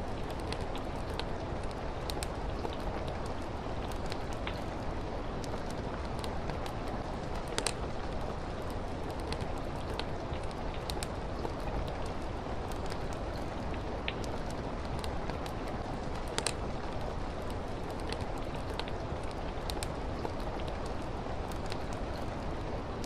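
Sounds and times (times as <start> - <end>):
steady rain: 0.0 - 23.0
wood fire crackling and popping: 0.0 - 23.0.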